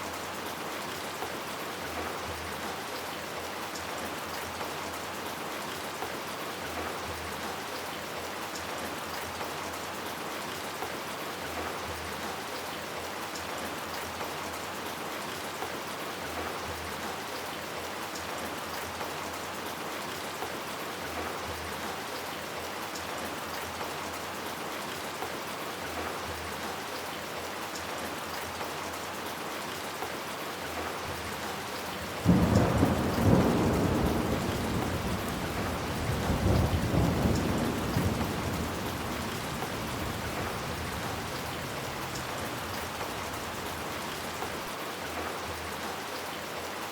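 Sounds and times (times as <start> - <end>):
rain falling: 0.0 - 46.9
thunder clap and rumble: 32.2 - 44.5.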